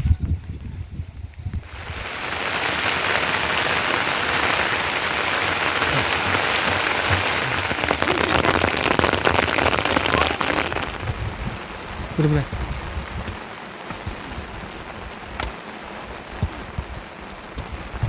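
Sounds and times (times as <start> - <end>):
heavy rain falling: 0.1 - 18.0.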